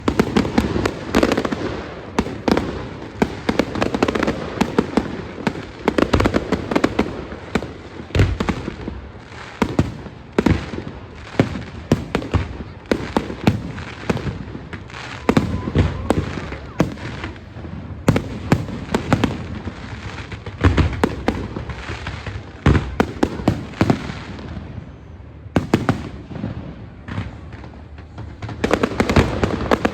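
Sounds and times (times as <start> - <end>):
fireworks bangs and crackles: 0.0 - 29.9.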